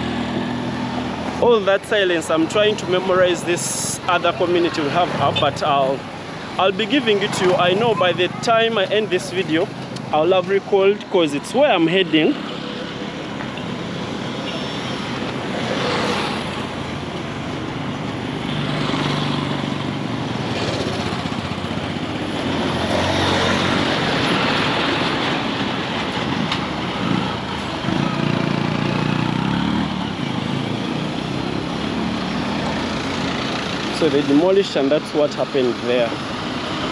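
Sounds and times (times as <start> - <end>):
vehicles passing: 0.0 - 36.9.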